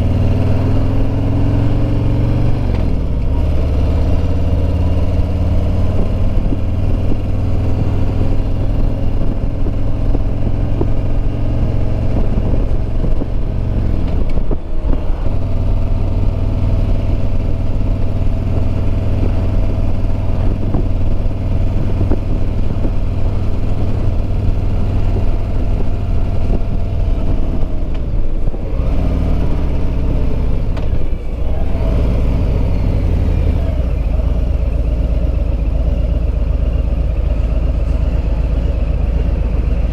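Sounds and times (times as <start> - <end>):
wind noise: 0.0 - 35.6
motorcycle engine running: 0.0 - 39.9.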